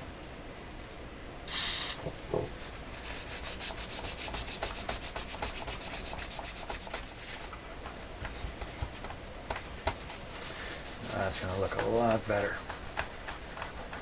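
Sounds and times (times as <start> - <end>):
rapid rubbing strokes: 2.9 - 7.6, 10.2 - 14.0.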